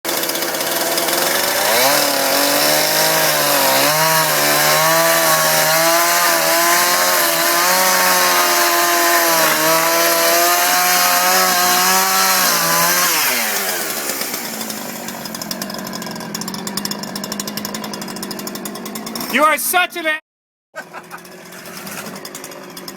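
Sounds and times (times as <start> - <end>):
engine revving: 1.0 - 14.3.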